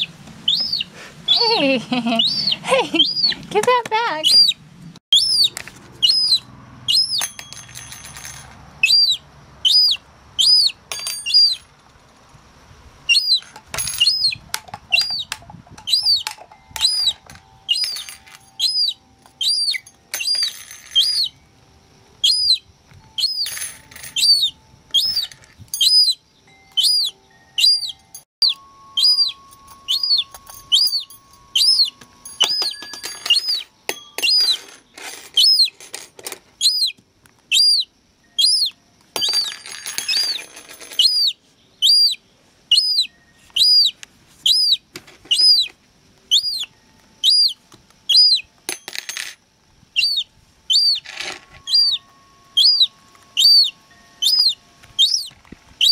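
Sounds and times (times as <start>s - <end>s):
gull chick peeping: 0.0s - 1.6s, 2.2s - 3.6s, 4.2s - 7.3s, 8.8s - 11.6s, 13.1s - 13.4s, 14.0s - 18.0s, 18.6s - 20.4s, 22.2s - 23.5s, 24.2s - 32.6s, 36.6s - 38.8s, 41.0s - 45.7s, 46.3s - 48.5s, 50.0s - 51.0s, 51.6s - 55.9s.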